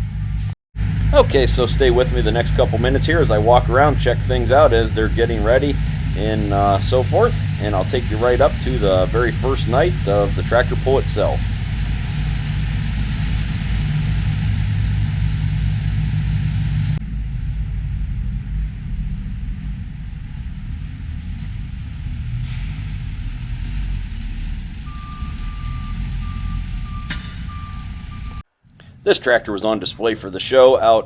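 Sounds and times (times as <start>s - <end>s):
heavy equipment engines rumbling: 0.0s - 31.0s
reversing beeper: 0.8s - 15.0s, 24.8s - 28.4s.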